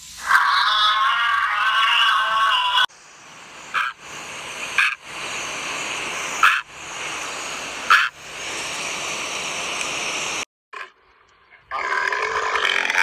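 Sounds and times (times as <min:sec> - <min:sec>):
steady background hiss: 0:02.2 - 0:10.4.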